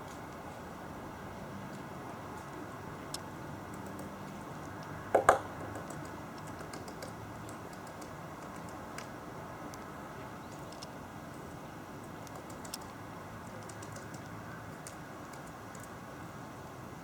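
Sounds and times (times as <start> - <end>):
loud woodpecker double knock: 5.1 - 5.8
woodpecker tapping: 5.1 - 9.1.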